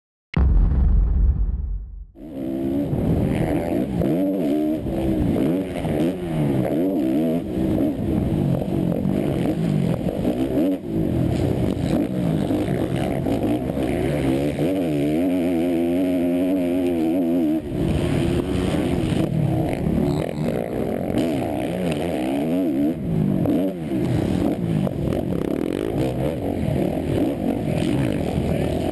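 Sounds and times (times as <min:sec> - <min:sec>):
loud low rumble: 0:00.4 - 0:03.3
motocross bike engine revving: 0:02.2 - 0:28.9.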